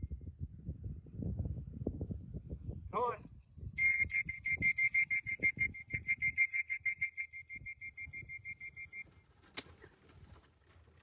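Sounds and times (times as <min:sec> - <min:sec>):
rapid whistle-like trill: 0:03.8 - 0:09.1.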